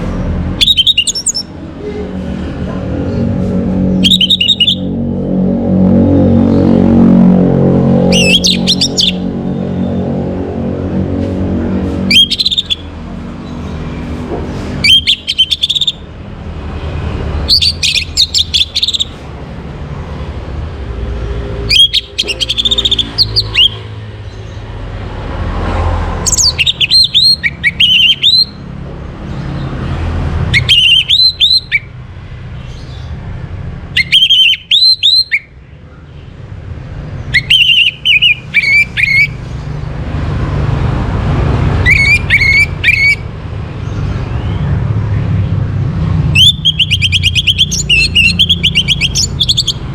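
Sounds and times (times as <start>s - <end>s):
thrush singing whistled notes: 0.6s - 1.5s, 3.9s - 7.1s, 7.9s - 10.5s, 12.0s - 13.7s, 14.8s - 16.1s, 17.4s - 19.2s, 21.6s - 23.9s, 26.2s - 28.7s, 30.5s - 31.9s, 33.9s - 35.7s, 37.2s - 39.4s, 41.8s - 43.3s, 46.2s - 49.9s.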